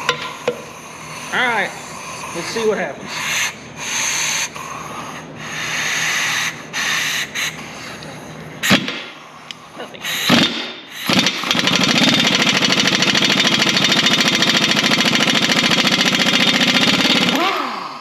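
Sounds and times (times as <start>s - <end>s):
impact wrench hammering: 0.0s - 0.8s, 8.6s - 9.2s, 10.1s - 17.9s.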